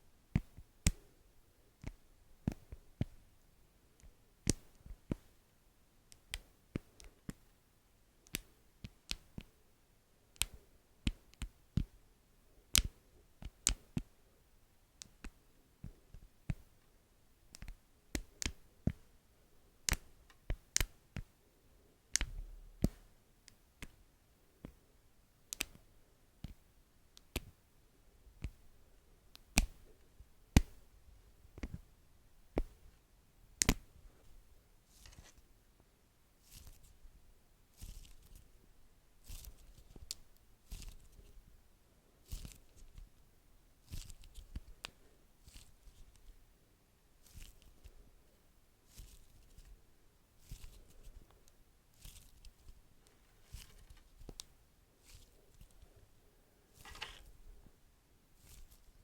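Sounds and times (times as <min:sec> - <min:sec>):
sharp taps and clicks on wax: 0:19.8 - 0:21.3, 0:25.5 - 0:25.8.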